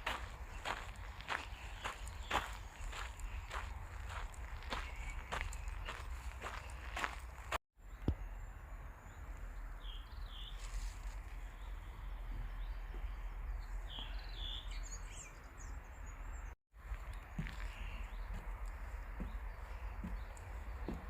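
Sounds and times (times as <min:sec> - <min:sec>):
high bird chirps: 0:04.6 - 0:06.8.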